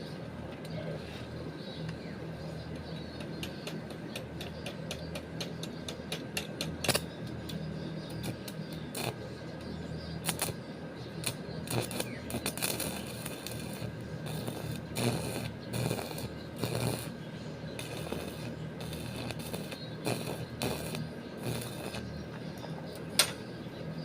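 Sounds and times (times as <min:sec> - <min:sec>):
steady low hum: 0:00.0 - 0:24.0
sharp clicks and knocks: 0:02.7 - 0:08.8, 0:23.0 - 0:23.4.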